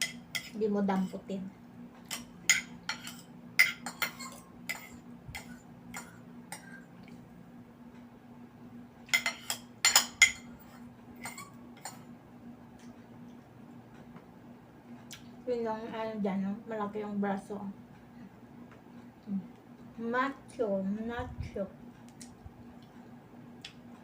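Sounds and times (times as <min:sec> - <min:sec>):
cutlery clinking on plate: 0:02.1 - 0:05.0.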